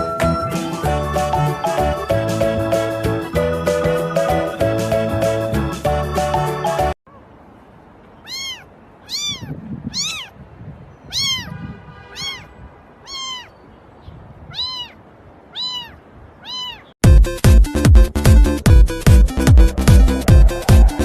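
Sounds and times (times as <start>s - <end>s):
cat meowing: 8.2s - 10.4s, 11.1s - 13.6s, 14.5s - 17.0s.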